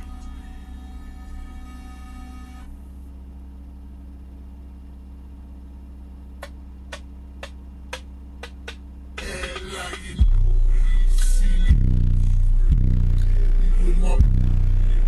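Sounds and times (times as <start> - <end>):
low bass drone: 0.0 - 15.0.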